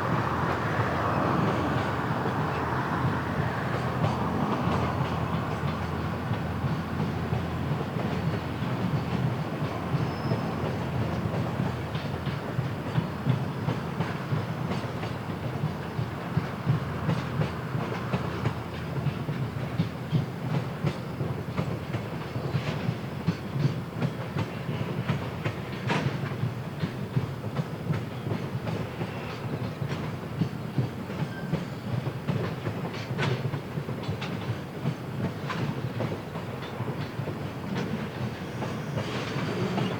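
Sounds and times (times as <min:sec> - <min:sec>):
freight train rumble: 0:00.0 - 0:39.9
train wheels clacking over rail joints: 0:00.0 - 0:39.9.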